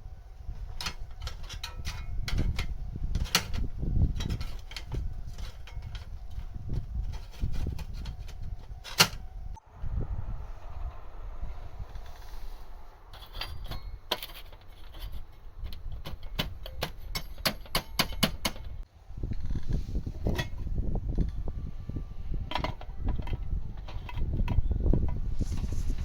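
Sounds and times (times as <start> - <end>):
metal parts clinking: 0.7 - 9.2, 13.1 - 18.8
low rumble: 9.2 - 14.1.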